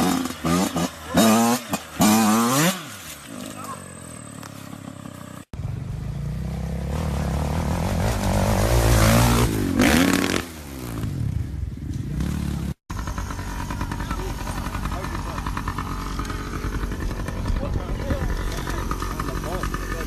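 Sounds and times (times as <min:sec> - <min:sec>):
motorcycle engine revving: 0:00.0 - 0:20.0
motorcycle engine running steadily: 0:03.4 - 0:09.8, 0:10.6 - 0:20.0.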